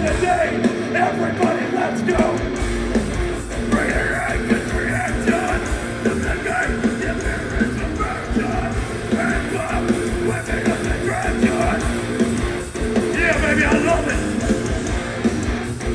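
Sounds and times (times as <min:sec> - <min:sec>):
shouted vocals: 0:00.0 - 0:02.6, 0:03.7 - 0:12.0, 0:13.1 - 0:14.6
distorted electric guitars: 0:00.0 - 0:15.9
pounding drums: 0:00.0 - 0:15.9.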